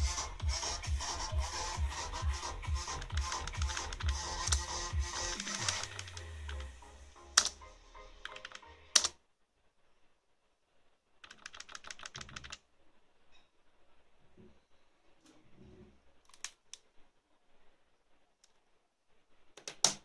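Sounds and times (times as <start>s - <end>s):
computer keyboard typing: 2.7s - 6.7s, 7.4s - 7.6s, 8.2s - 9.2s, 11.2s - 12.6s.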